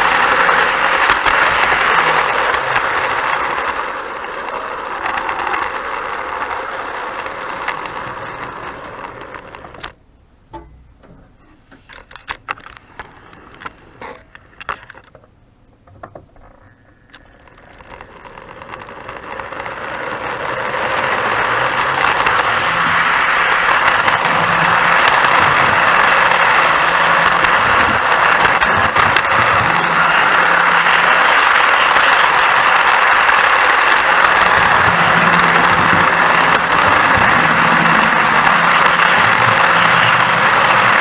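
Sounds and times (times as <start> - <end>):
sharp clicks: 0.0 - 41.0
train rattling on track: 16.9 - 41.0.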